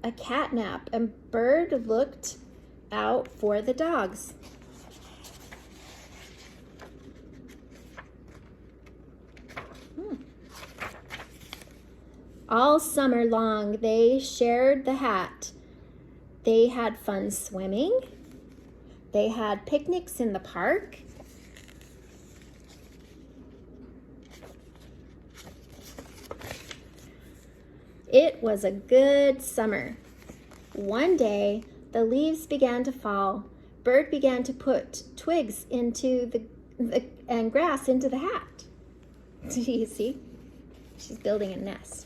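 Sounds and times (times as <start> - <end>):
book pages turning: 4.3 - 12.1, 20.9 - 27.7, 29.9 - 31.7.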